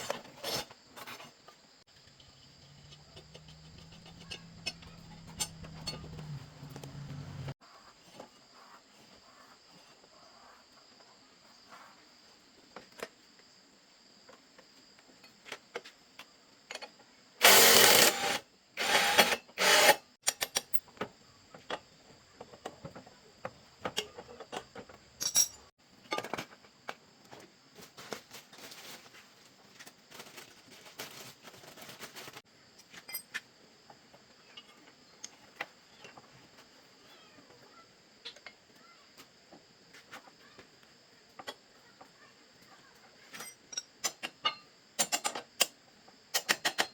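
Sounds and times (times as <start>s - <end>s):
tools clicking and tapping: 2.1s - 7.5s, 19.2s - 21.1s, 43.3s - 46.9s.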